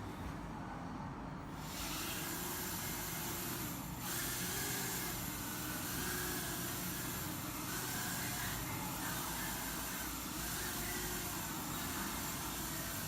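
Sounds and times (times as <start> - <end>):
quadcopter motors whirring: 1.6 - 13.0.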